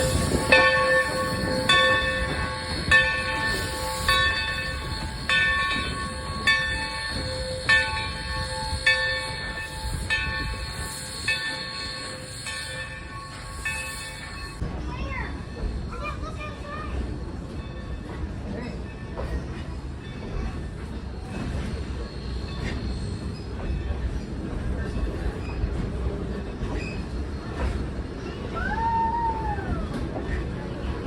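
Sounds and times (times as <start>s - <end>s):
locomotive bell ringing: 0.0s - 23.4s
low rumble of train: 0.0s - 31.0s.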